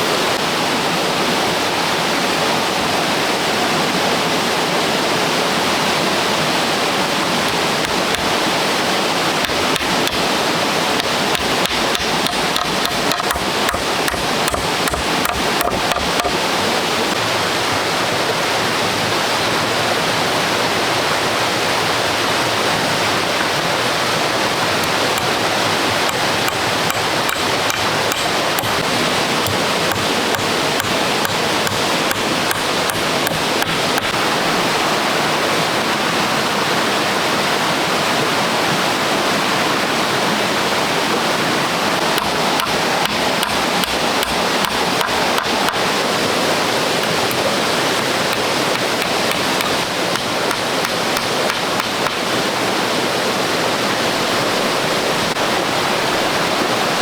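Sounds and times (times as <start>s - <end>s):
rushing water: 0.0s - 57.0s
sharp knocks: 9.4s - 10.2s, 11.0s - 16.4s, 26.0s - 34.2s, 42.1s - 45.9s, 48.3s - 52.2s.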